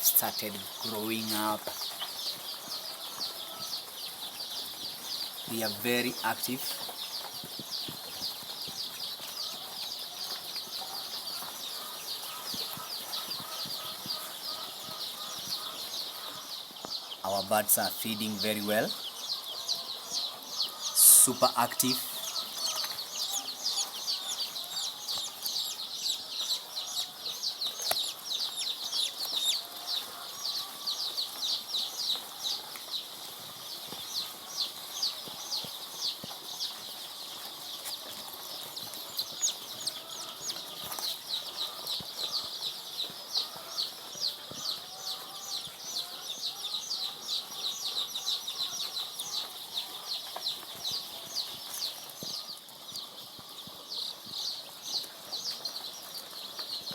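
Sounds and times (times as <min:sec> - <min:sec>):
chicks peeping: 0:00.0 - 0:56.9.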